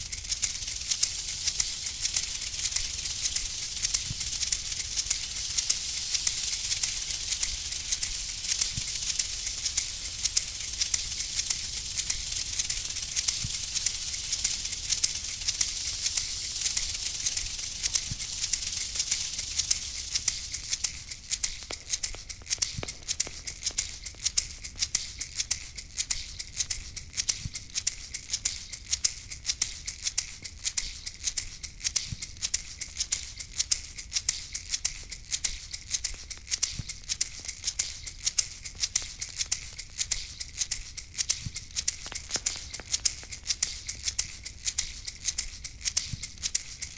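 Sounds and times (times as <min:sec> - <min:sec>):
high hiss: 0:00.0 - 0:25.5, 0:35.4 - 0:46.9
rattle shaken rhythmically: 0:00.0 - 0:46.9.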